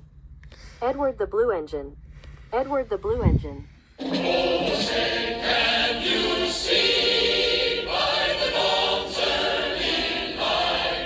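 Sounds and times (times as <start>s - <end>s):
choir singing: 4.0s - 11.0s.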